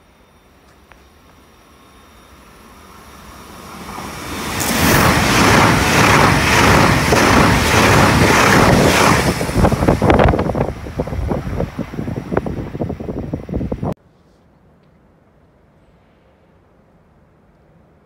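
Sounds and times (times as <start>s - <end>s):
high-speed train passing: 0.0s - 14.0s.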